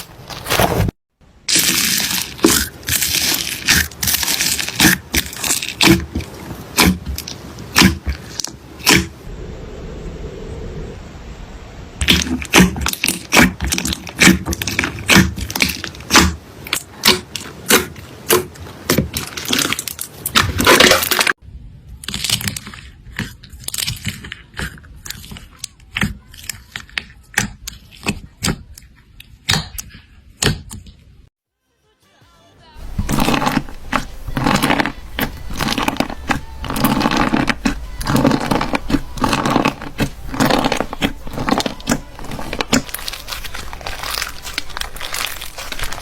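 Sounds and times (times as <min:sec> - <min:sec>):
slime crackling and popping: 0:01.4 - 0:09.1, 0:12.0 - 0:21.4, 0:32.8 - 0:46.0.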